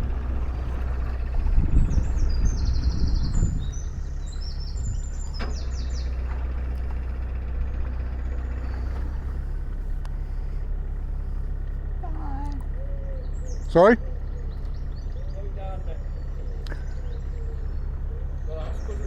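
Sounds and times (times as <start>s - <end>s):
diesel engine humming: 0.0s - 19.0s
small bird chirping: 0.7s - 6.3s, 12.3s - 19.0s.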